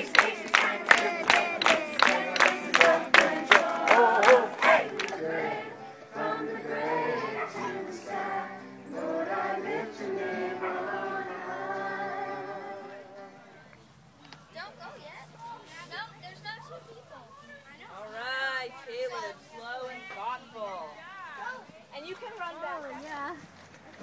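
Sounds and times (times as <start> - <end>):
rhythmic hand claps: 0.0 - 5.6
children singing and chanting: 0.0 - 13.7.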